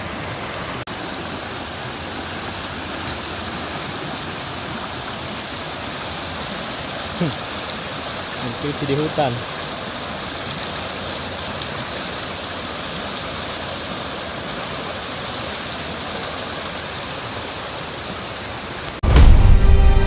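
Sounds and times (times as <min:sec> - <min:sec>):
water rushing: 0:00.0 - 0:20.0
loud music: 0:19.0 - 0:20.0.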